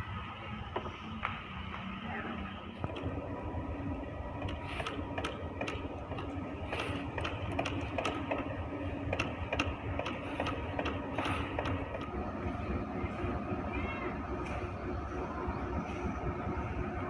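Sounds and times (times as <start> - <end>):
faint engine hum: 0.0 - 17.0
train rumbling: 0.0 - 17.0
clicks and knocks of wheels: 0.6 - 2.0, 2.7 - 3.2, 4.3 - 12.2.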